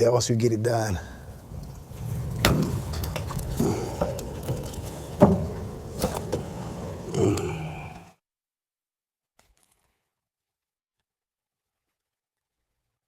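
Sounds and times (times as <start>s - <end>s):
metal knocks and clanks: 1.3s - 7.1s.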